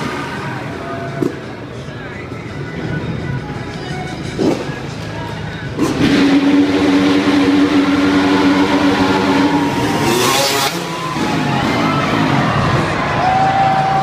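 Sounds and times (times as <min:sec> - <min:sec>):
dirt bike engine revving: 0:04.3 - 0:04.9, 0:05.7 - 0:13.0.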